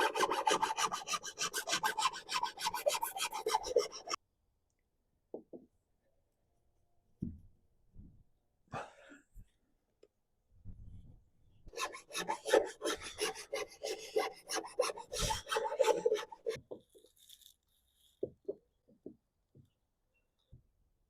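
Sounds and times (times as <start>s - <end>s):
rasping on fiberglass: 0.0s - 4.2s, 11.8s - 16.6s.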